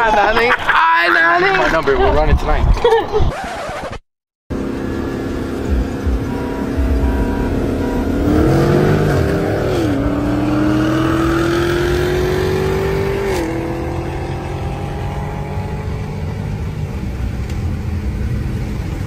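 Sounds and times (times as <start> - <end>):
car engine accelerating: 4.5 - 19.0.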